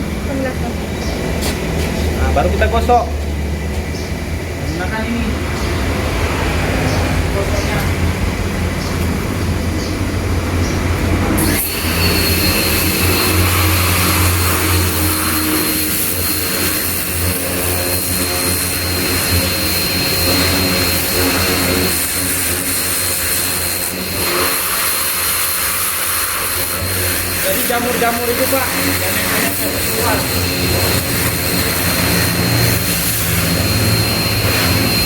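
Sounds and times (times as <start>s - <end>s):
pressure washer motor humming: 0.0s - 35.0s
water jet spraying hiss: 11.4s - 35.0s.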